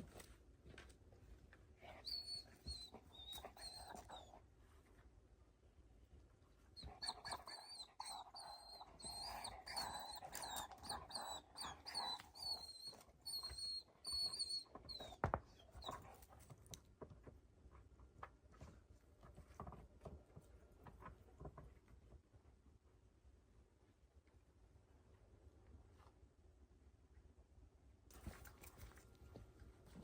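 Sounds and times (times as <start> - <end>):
faint clicks and rustles: 0.0 - 5.2, 6.0 - 22.6, 28.1 - 30.0
dog whining: 1.8 - 4.4, 6.8 - 16.2.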